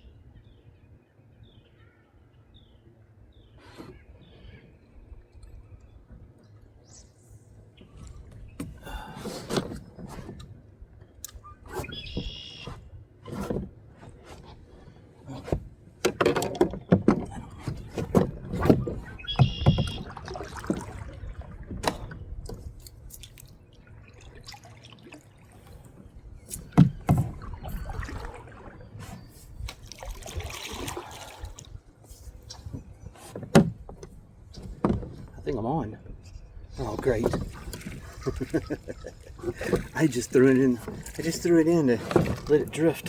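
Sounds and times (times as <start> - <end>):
wind: 0.0 - 43.0
water noise: 5.2 - 43.0
knocks against a boat: 15.4 - 22.8, 26.5 - 28.1, 32.6 - 35.5.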